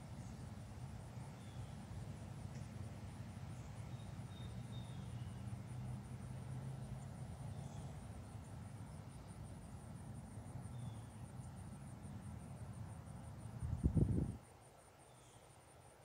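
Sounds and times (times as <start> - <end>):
distant traffic rumble: 0.0 - 14.4
faint bird chirps: 3.6 - 5.4, 15.0 - 15.6.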